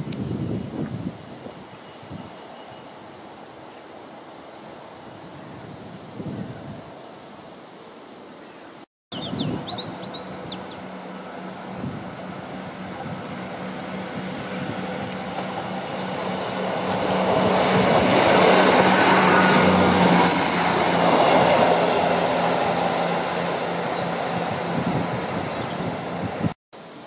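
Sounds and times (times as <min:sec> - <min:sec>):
train wheels rumbling on rails: 0:10.8 - 0:26.6.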